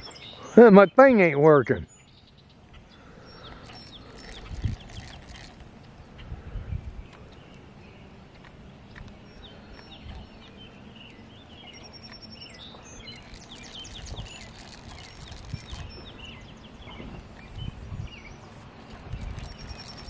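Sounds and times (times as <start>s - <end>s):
small birds chirping: 0.0s - 20.0s
wind or handling rumble on microphone: 3.5s - 7.5s, 8.3s - 20.0s.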